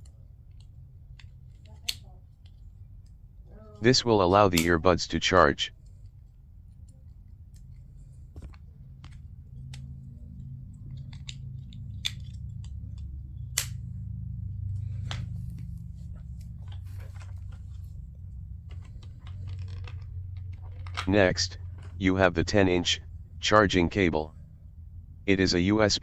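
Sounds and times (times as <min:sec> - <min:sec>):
low steady hum: 0:00.0 - 0:26.0
small plastic clicks and taps: 0:06.8 - 0:13.9.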